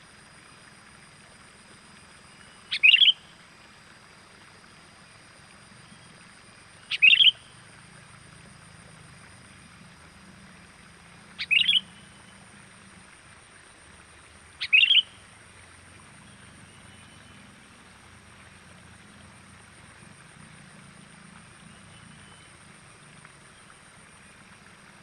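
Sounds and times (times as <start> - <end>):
short sharp bird calls: 2.7 - 3.2, 6.9 - 7.4, 11.4 - 12.0, 14.6 - 15.1.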